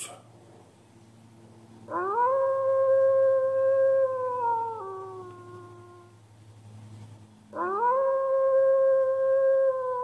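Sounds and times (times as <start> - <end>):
wolf howling: 1.9 - 6.2, 7.5 - 10.0.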